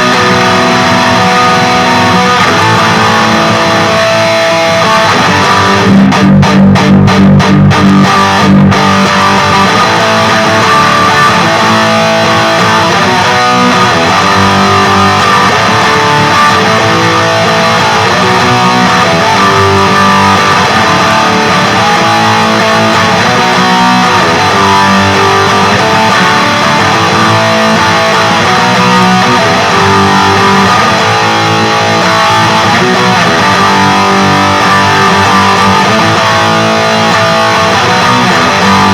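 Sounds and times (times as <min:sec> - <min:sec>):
high-gain electric guitar riffing: 0:00.0 - 0:38.9.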